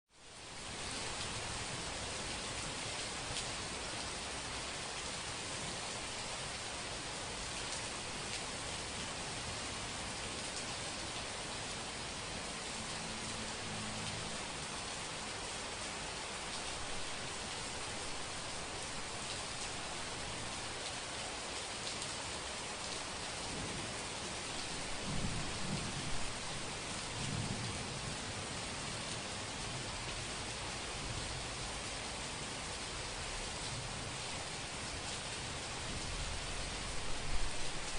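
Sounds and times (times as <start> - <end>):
steady rain hiss: 0.1 - 37.9
thunder rumbling: 24.9 - 27.7.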